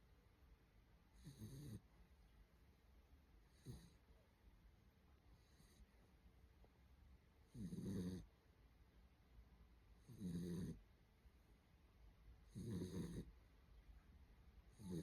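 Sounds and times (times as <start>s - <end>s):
puppy snoring: 1.1s - 1.9s, 3.4s - 4.1s, 5.3s - 5.9s, 7.4s - 8.4s, 10.0s - 10.9s, 12.4s - 13.4s, 14.7s - 15.0s.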